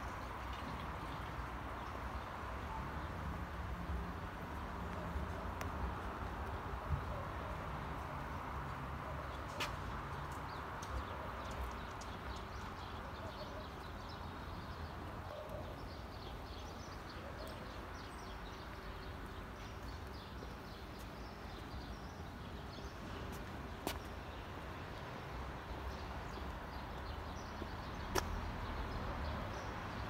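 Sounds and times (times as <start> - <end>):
footsteps on pavement: 8.7 - 11.1, 18.6 - 28.6.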